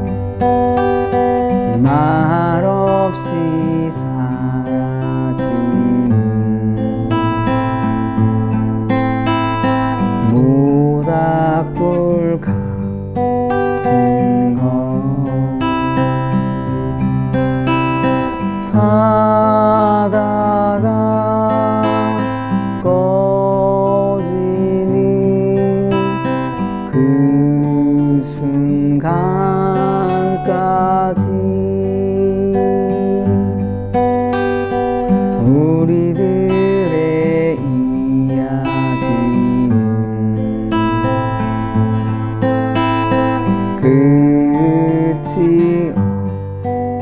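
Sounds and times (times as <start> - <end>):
person singing: 0.0 - 33.8, 34.4 - 46.4
acoustic guitar fingerpicking: 0.0 - 47.0.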